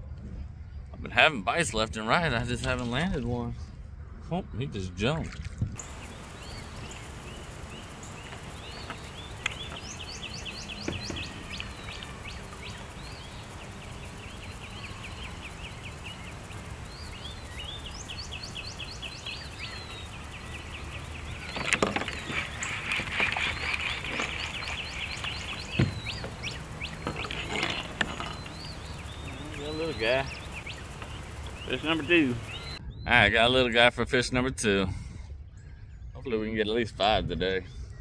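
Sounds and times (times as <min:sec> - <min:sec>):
songbirds chirping trills: 0:00.0 - 0:38.0
sharp knocks: 0:25.7 - 0:26.3.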